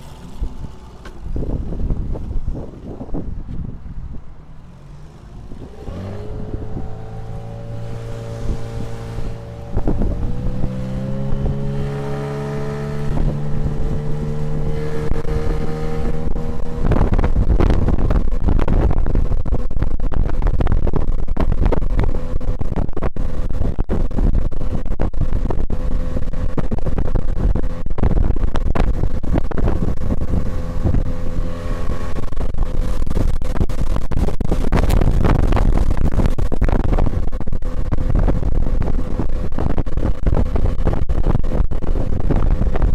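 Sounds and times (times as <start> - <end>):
wind buffeting microphone: 0.0 - 42.9
outboard motor revving up: 4.6 - 18.8, 25.4 - 42.9.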